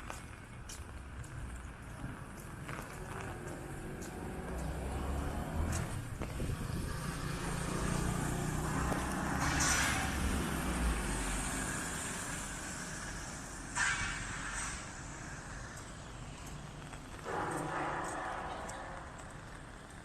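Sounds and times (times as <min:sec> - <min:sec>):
vehicle engine rumble: 0:00.0 - 0:20.0
tyre hiss on wet street: 0:00.1 - 0:20.0.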